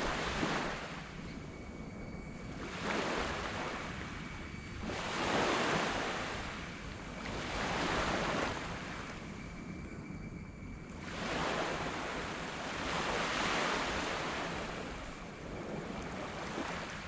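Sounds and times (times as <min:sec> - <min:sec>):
waves breaking on sand beach: 0:04.8 - 0:06.5, 0:11.0 - 0:17.0.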